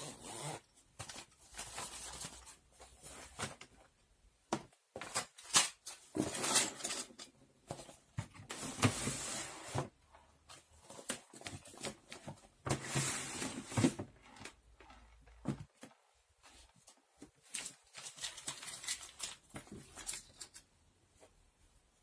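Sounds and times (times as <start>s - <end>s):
objects rustling or sliding: 5.0s - 21.4s.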